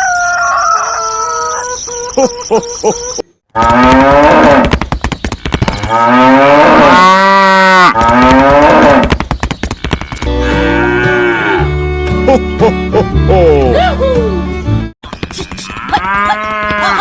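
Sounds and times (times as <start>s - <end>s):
cow mooing: 5.8s - 9.0s, 10.0s - 11.7s.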